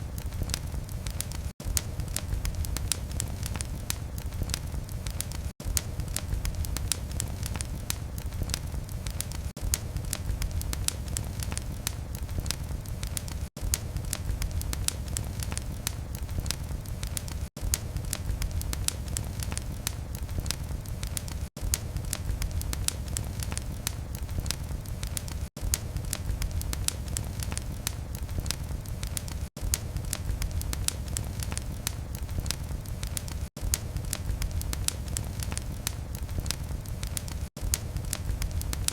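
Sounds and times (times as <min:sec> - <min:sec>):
fire crackling in fireplace: 0:00.0 - 0:38.9.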